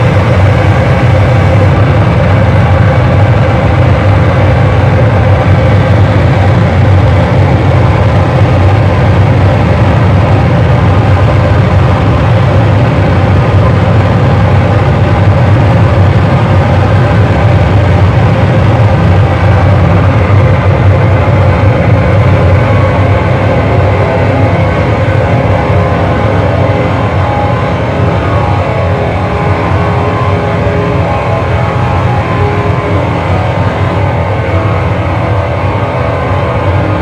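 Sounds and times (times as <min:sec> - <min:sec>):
distorted electronic noise: 0:00.0 - 0:37.0
heavy low rumble: 0:00.0 - 0:37.0.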